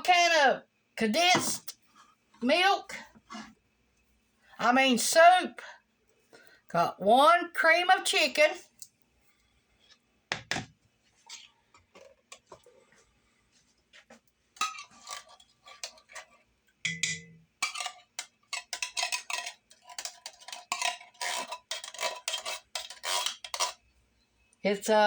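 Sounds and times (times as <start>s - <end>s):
metal spoon scraping metal: 14.6s - 23.8s.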